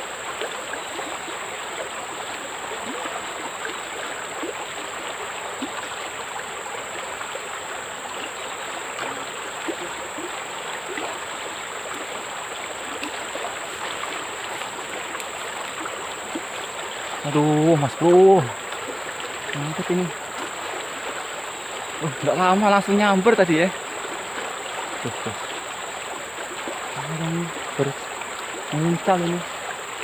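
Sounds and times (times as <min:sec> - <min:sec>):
stream water rushing: 0:00.0 - 0:30.0
faint small ticks: 0:12.9 - 0:15.8.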